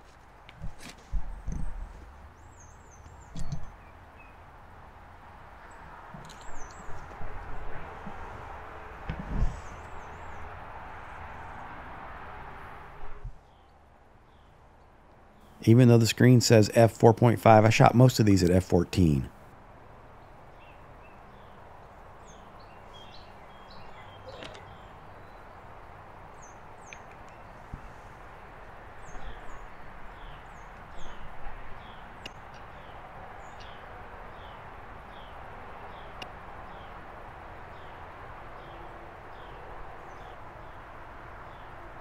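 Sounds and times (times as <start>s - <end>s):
outdoor background hiss: 0.0s - 42.0s
small birds chirping: 1.0s - 4.5s, 5.6s - 8.4s, 9.3s - 10.6s, 13.4s - 15.6s, 20.1s - 41.8s.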